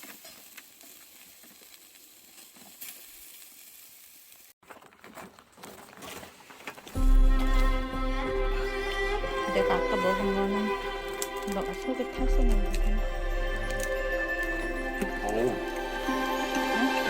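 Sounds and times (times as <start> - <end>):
faint crackling hiss: 0.0 - 4.6
music with bowed strings: 7.0 - 17.0.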